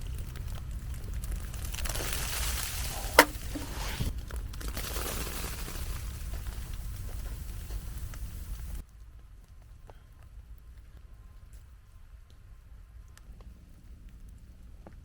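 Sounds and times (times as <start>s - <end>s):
campfire crackling: 0.0s - 15.0s
sharp loud pop: 2.9s - 4.1s.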